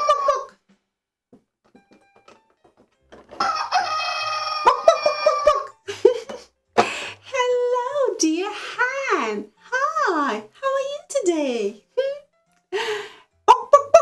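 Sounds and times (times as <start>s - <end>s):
rooster clucking: 0.0s - 0.5s, 3.3s - 5.8s
rooster crowing: 0.0s - 0.5s, 3.3s - 5.8s.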